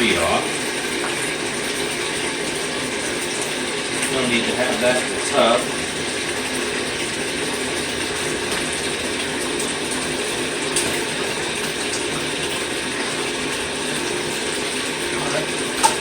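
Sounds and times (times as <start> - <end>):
running tap water: 0.0 - 16.0.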